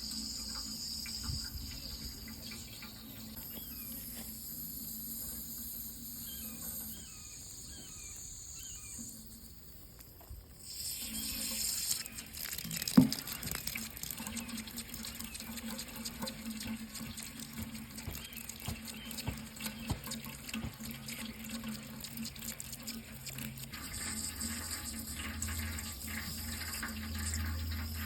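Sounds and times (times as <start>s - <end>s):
tap water running into sink: 10.7s - 28.0s.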